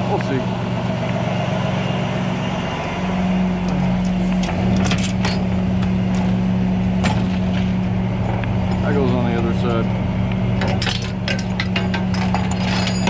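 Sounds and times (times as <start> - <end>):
truck engine running: 0.0 - 13.0
metallic clicks and clanks: 10.6 - 13.0.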